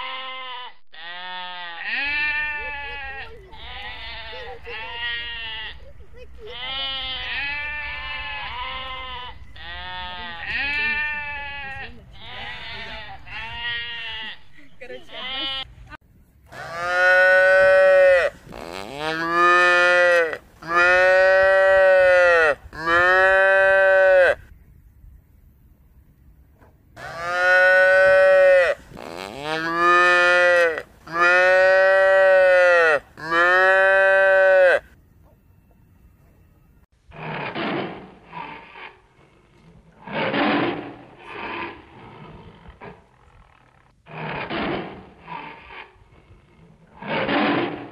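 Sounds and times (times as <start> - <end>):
long bleating calls: 0.0 - 5.9, 6.5 - 14.5, 15.1 - 15.7, 16.5 - 24.5, 27.0 - 35.0
cow mooing: 16.6 - 24.4, 27.0 - 34.9.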